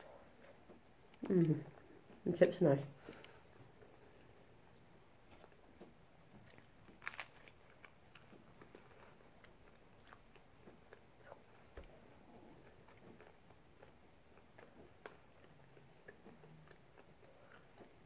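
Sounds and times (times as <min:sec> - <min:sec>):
person chewing food: 0:03.7 - 0:18.0.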